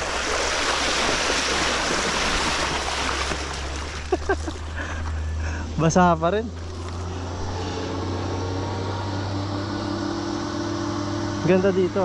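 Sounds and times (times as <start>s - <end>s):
river water rushing and splashing: 0.0s - 6.0s
low hum: 0.0s - 12.0s.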